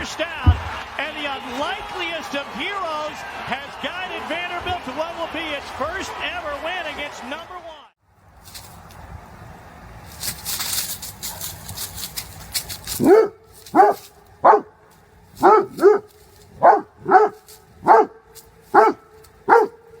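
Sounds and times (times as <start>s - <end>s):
dog barking: 13.0s - 14.8s, 15.4s - 20.0s.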